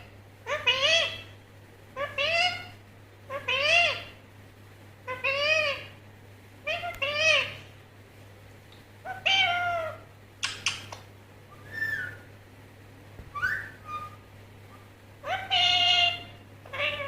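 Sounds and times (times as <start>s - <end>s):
parrot calling: 0.0s - 1.4s, 2.0s - 4.2s, 5.0s - 6.0s, 6.6s - 7.7s, 9.0s - 12.3s, 13.3s - 17.0s
parrot clicks: 10.4s - 11.1s
parrot whistled notes: 11.6s - 12.2s, 13.4s - 14.2s.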